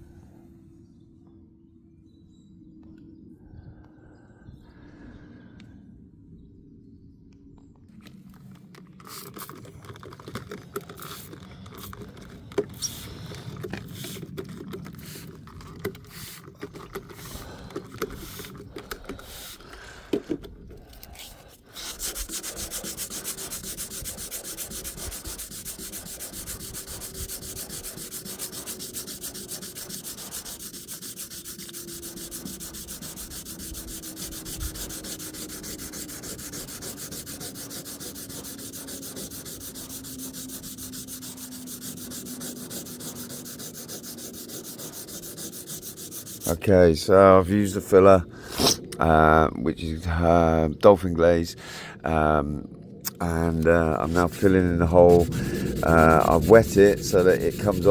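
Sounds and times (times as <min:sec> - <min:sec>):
scraping on car body panel: 0:21.8 - 0:46.6.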